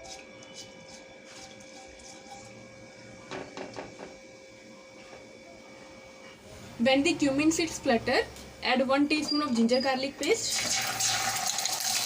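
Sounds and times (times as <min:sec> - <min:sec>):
low hiss of frying: 0:10.4 - 0:12.0
seeds crackling in hot oil: 0:10.4 - 0:12.0.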